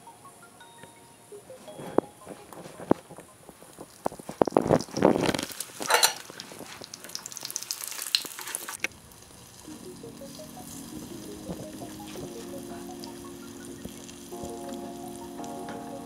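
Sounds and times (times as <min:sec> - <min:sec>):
soft background music: 0:00.0 - 0:04.4, 0:09.6 - 0:16.0
cutlets sizzling in hot oil: 0:03.9 - 0:12.2.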